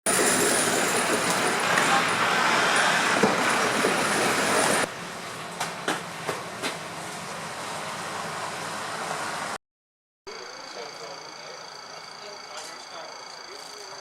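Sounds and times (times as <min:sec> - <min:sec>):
wheels clacking over rail joints: 0:00.1 - 0:07.7
train rushing past: 0:00.1 - 0:09.6.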